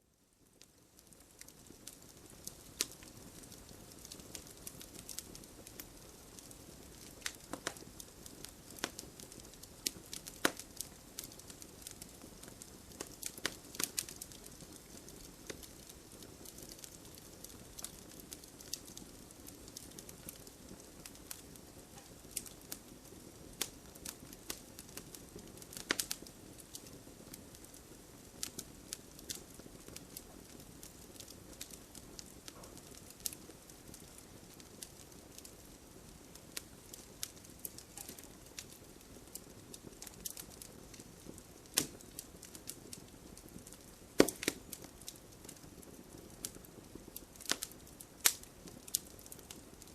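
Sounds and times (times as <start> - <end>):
wood crackling and popping: 0.3 - 49.9
campfire hissing: 0.4 - 49.9.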